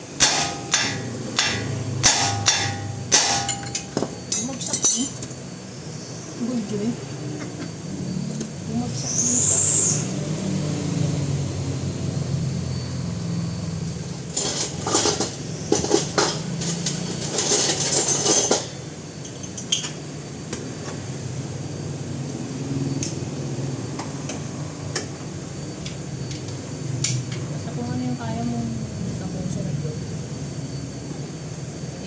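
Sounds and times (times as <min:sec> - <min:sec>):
steady low hum: 0:00.0 - 0:09.2
metal tools clinking: 0:00.1 - 0:05.4, 0:14.3 - 0:20.0.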